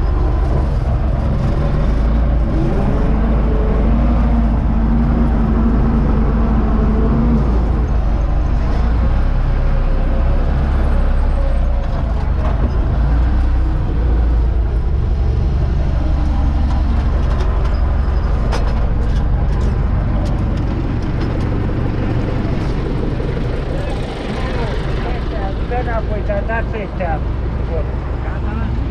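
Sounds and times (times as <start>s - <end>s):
tractor diesel engine drone: 0.0s - 28.9s.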